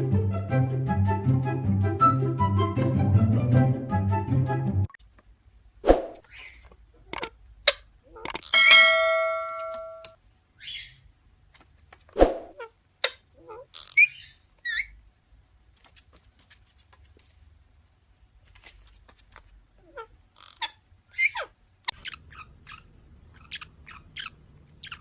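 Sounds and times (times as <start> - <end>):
ringing tone: 8.6 - 10.1
parrot squeaking and whistling: 13.8 - 15.0, 20.4 - 25.0.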